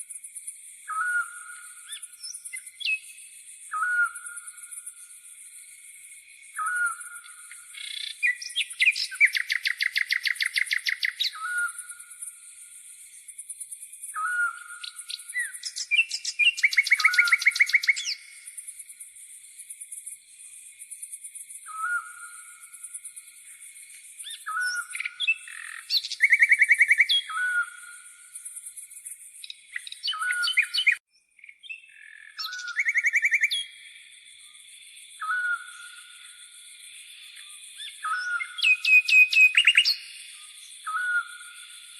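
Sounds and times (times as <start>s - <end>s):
songbirds singing: 0.0s - 41.9s
bird trills: 6.6s - 12.1s, 14.1s - 18.5s, 24.2s - 28.2s, 29.4s - 33.8s, 37.3s - 41.9s.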